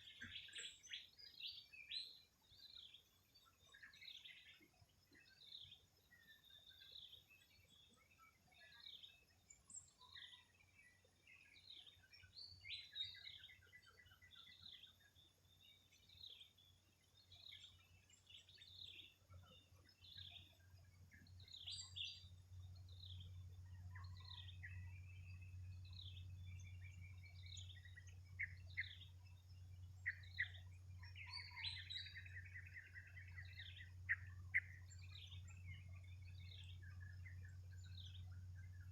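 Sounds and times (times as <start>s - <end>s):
birds chirping and calling: 0.0s - 2.2s, 21.2s - 22.3s, 25.9s - 38.9s.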